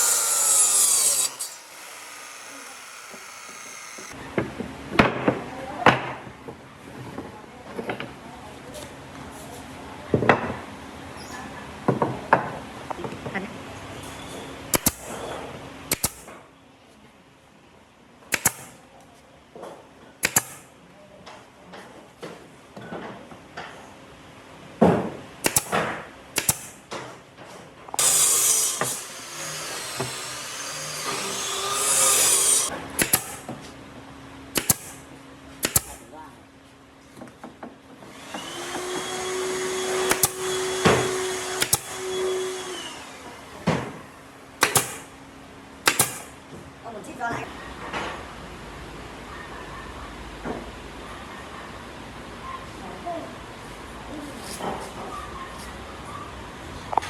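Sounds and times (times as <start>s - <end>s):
power tool motor whining: 0.0s - 4.2s, 28.0s - 33.4s, 38.1s - 43.6s
low workshop noise: 0.0s - 57.0s
sharp knocks: 44.6s - 45.1s, 45.9s - 46.3s.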